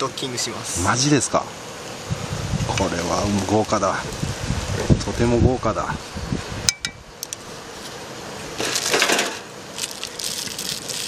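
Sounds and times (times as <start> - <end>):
fire hissing: 0.0 - 11.0
wood fire crackling: 0.0 - 11.0
fire popping: 0.8 - 11.0.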